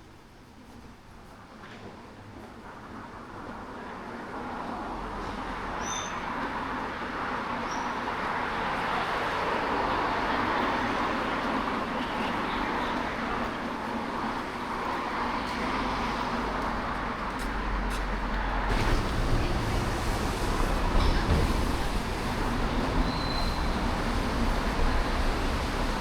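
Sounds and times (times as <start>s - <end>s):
city traffic: 3.7s - 26.0s
nearby vehicle rumble: 18.7s - 26.0s.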